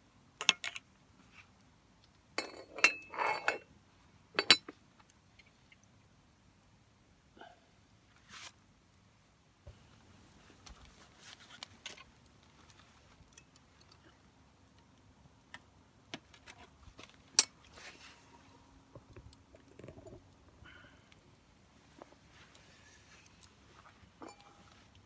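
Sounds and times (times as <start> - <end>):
campfire crackling: 9.8 - 25.0.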